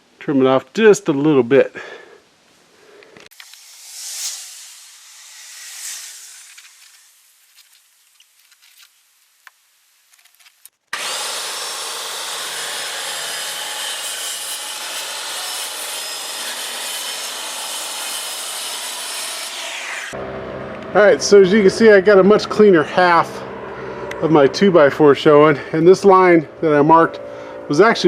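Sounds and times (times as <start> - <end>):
circular saw cutting panel: 3.3 - 7.8, 10.9 - 28.0.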